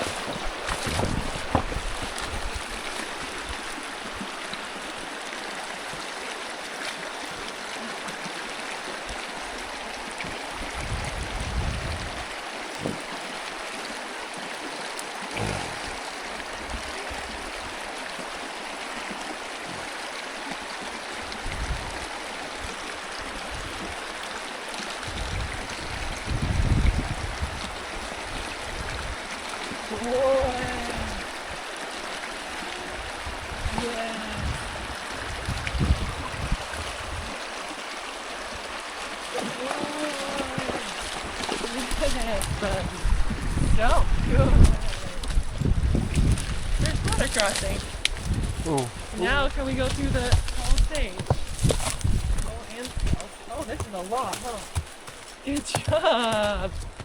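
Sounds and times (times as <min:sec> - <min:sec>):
creek water running: 0:00.0 - 0:57.0.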